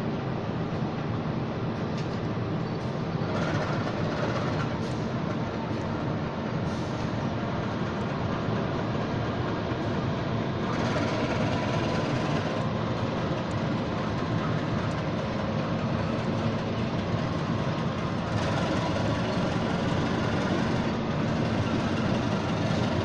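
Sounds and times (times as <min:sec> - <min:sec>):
diesel locomotive engine running: 0:00.0 - 0:23.0
train wheels rumbling and rattling: 0:00.0 - 0:23.0.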